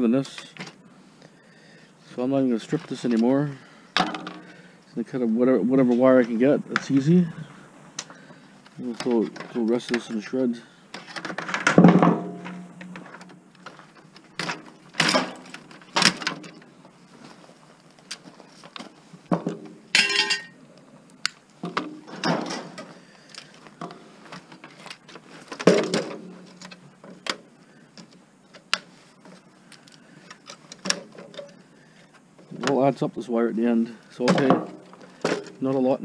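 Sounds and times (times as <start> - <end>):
electronic parts knocking and scraping: 5.9 - 17.5, 18.1 - 20.6, 21.6 - 32.9.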